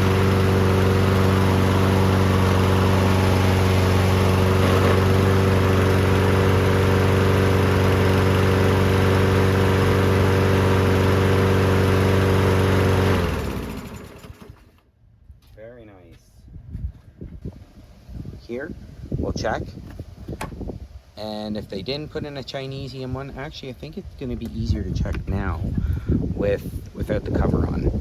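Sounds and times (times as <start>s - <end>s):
lawn mower engine running: 0.0s - 14.8s.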